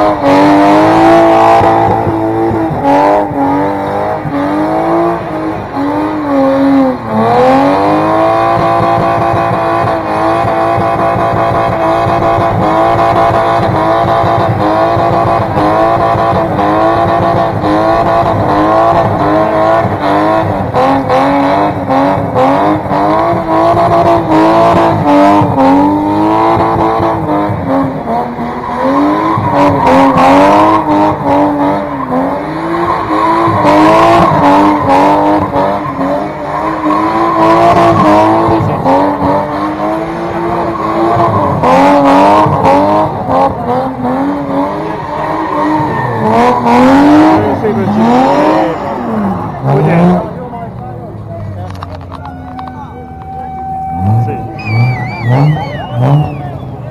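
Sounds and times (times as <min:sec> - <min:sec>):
car engine at high revs: 0:00.0 - 0:56.9
tyres squealing: 0:27.7 - 0:41.8, 0:43.8 - 0:50.2, 0:51.9 - 0:56.9.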